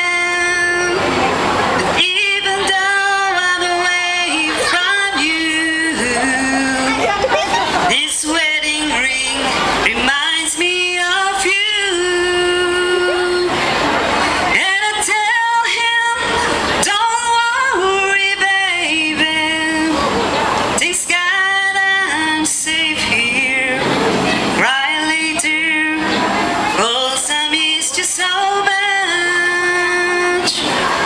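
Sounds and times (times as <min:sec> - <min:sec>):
woman singing long held notes: 0:02.0 - 0:13.6.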